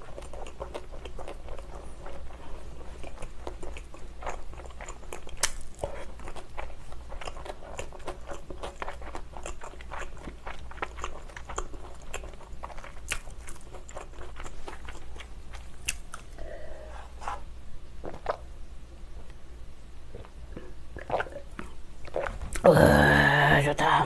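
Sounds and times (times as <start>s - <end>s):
crunchy chewing of pizza: 0.0s - 18.5s
person swallowing drink: 20.2s - 23.3s.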